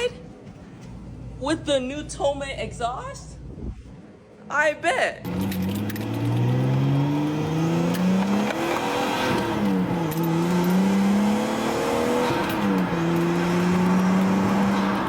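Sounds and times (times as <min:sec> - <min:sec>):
car engine accelerating through gears: 0:05.3 - 0:15.0.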